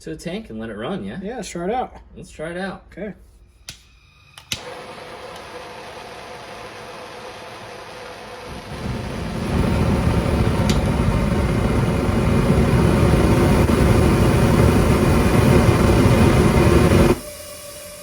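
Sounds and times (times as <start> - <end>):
propane burner rumbling and hissing: 4.4 - 18.0.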